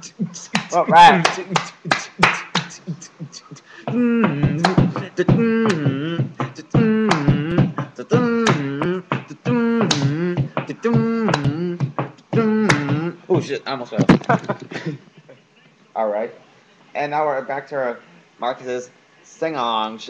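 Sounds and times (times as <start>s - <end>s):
beatbox percussive clicks: 0.0s - 13.1s.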